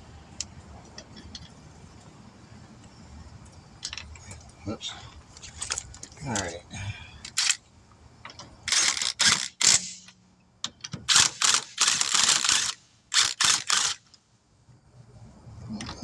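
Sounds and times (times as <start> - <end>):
ratchet wrench clicking: 7.3 - 7.6, 8.7 - 10.2, 11.1 - 14.1.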